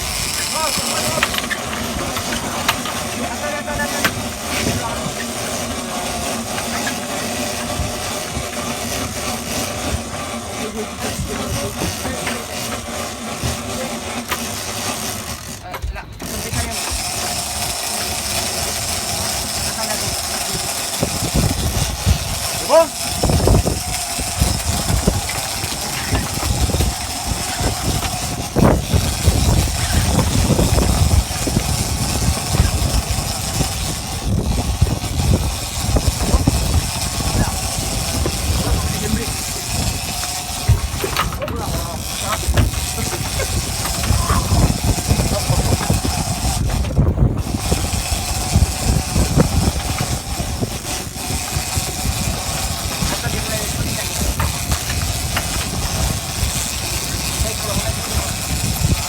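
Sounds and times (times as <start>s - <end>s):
wind buffeting microphone: 0.0s - 14.1s, 15.9s - 59.0s
boat engine running: 0.0s - 59.0s.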